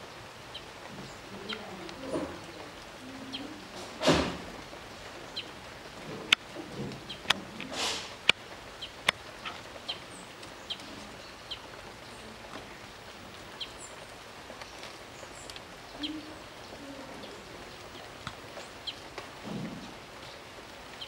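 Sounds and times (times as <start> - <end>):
small birds chirping: 0.0 - 21.0
brief rush of noise: 7.7 - 8.2.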